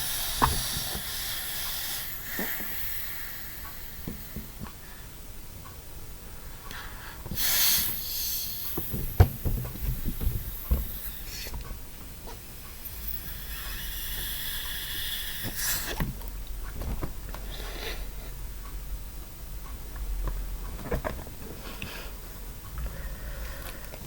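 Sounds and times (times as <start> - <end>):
person blowing into balloon: 7.3 - 11.5, 12.3 - 16.0
balloon knocks and thumps: 8.8 - 11.0.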